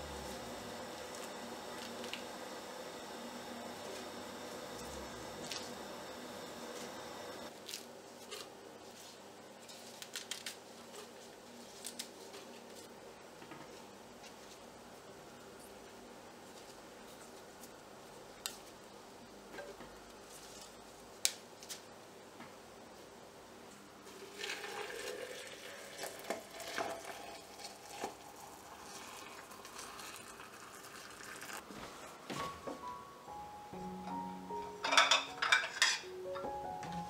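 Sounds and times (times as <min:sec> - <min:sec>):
water pouring into glass: 0:24.2 - 0:31.6.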